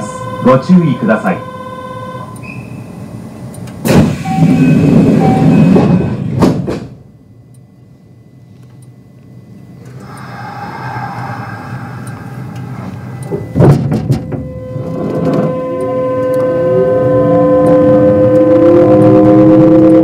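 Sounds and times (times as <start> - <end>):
train inverter whine: 0.0 - 20.0
train doors closing with thuds: 3.7 - 7.1, 12.6 - 15.7.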